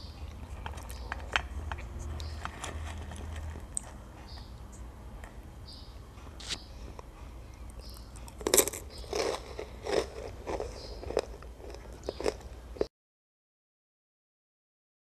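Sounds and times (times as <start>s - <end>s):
crunchy breadstick chewing: 0.2s - 4.3s, 7.7s - 12.9s.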